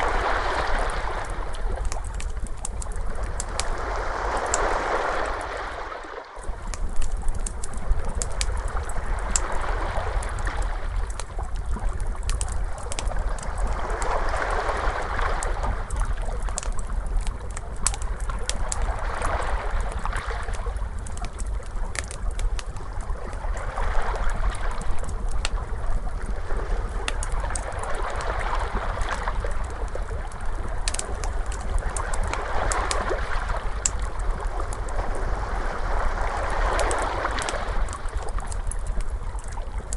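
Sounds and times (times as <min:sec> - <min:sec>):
ocean waves washing in: 0:00.0 - 0:02.2, 0:03.2 - 0:06.7, 0:13.2 - 0:16.0, 0:31.9 - 0:38.4
wood fire crackling: 0:00.0 - 0:05.7, 0:06.4 - 0:35.4, 0:36.3 - 0:39.9.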